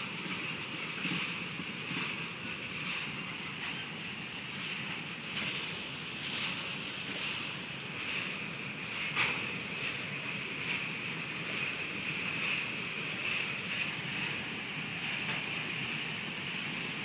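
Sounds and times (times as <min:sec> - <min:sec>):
train wheels rumbling on rails: 0:00.0 - 0:17.0
sharp train clank: 0:08.9 - 0:09.6.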